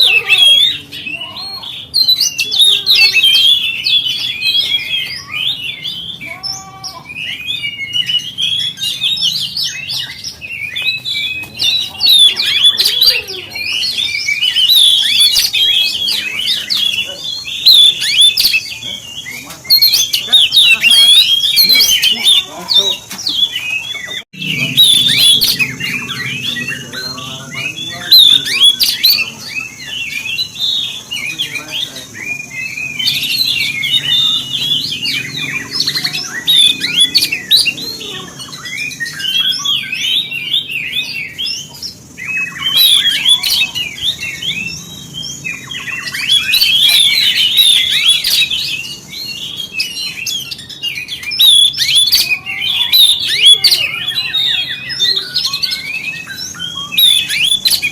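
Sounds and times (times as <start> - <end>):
songbird chirps and whistles: 0.0 - 57.9.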